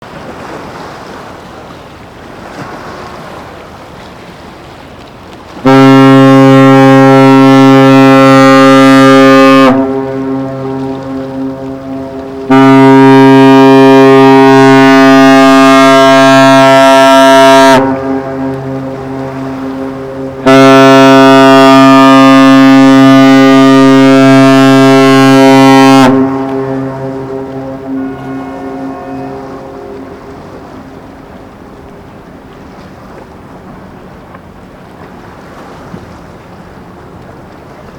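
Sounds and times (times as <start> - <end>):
deep ship horn blast: 5.5 - 31.6
horn echo: 5.6 - 30.9
faint low drone: 15.9 - 31.6.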